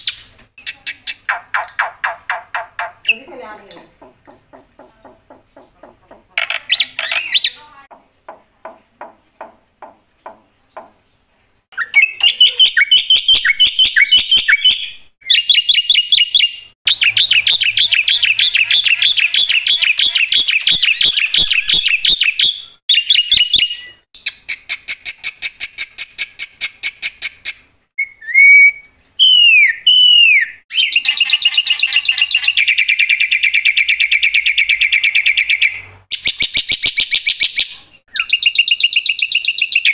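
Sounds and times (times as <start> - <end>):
bird singing with trills: 11.8 - 24.0.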